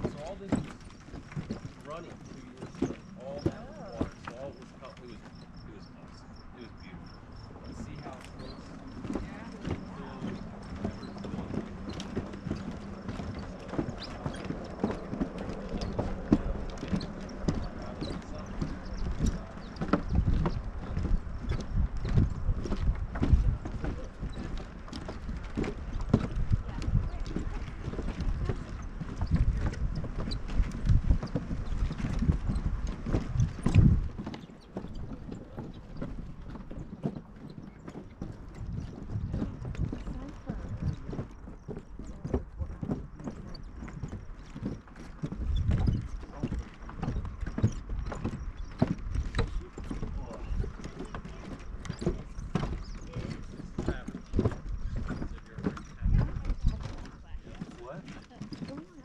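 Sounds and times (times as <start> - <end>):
footsteps on wooden boardwalk: 0.0 - 59.0
wind buffeting microphone: 0.0 - 59.0.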